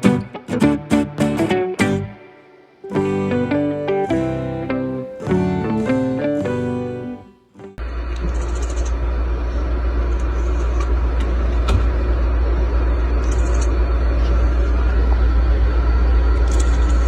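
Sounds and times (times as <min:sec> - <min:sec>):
steady low rumble: 0:07.8 - 0:17.0.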